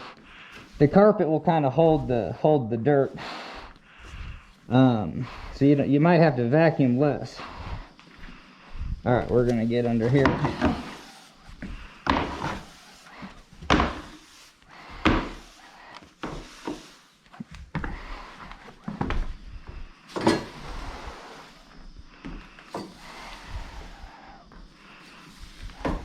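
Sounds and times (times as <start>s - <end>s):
broom sweeping: 0.0s - 2.4s, 6.4s - 17.5s, 18.2s - 26.0s
broom knocking against wood: 10.0s - 15.5s.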